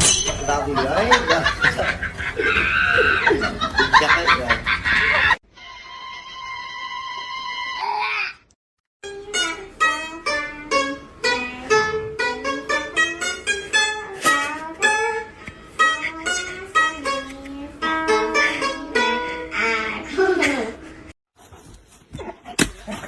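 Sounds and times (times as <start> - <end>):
plucked string melody: 9.0 - 20.8.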